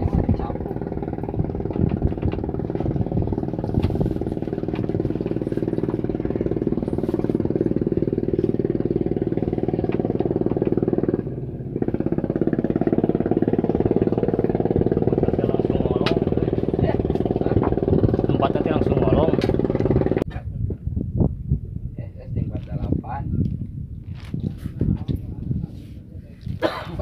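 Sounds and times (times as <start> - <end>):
small engine running: 0.1 - 20.2.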